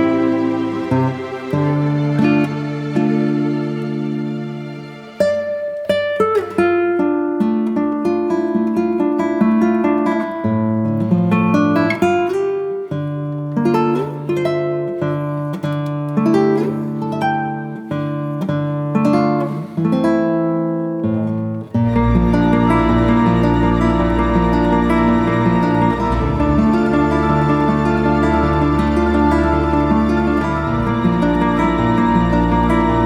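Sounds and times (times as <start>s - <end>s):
plucked acoustic guitar: 0.0s - 33.0s.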